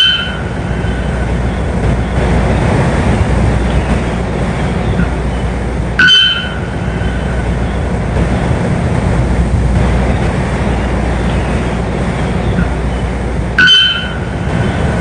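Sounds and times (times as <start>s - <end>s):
bird call: 0.0s - 8.1s, 12.4s - 15.0s
low rumbling noise: 0.0s - 15.0s.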